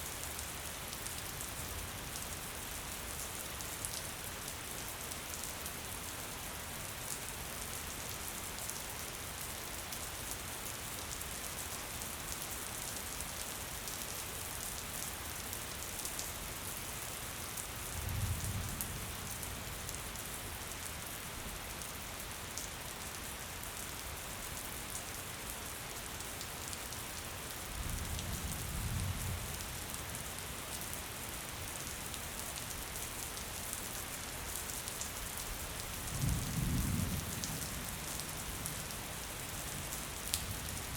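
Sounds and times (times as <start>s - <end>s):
gentle rain falling: 0.0s - 40.9s.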